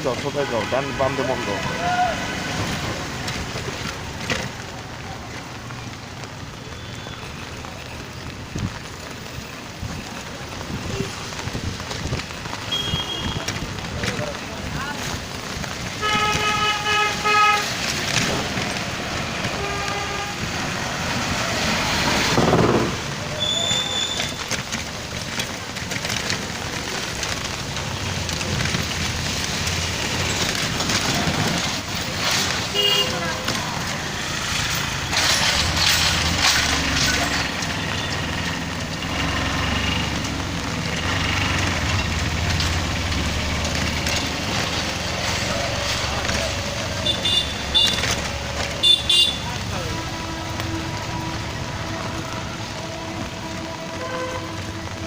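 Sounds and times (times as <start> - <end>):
rainy street traffic: 0.0 - 55.0
vehicle horn toots: 12.7 - 13.6, 16.0 - 17.8, 19.5 - 20.5, 32.7 - 33.2, 47.0 - 48.2, 48.8 - 51.4, 53.9 - 54.8.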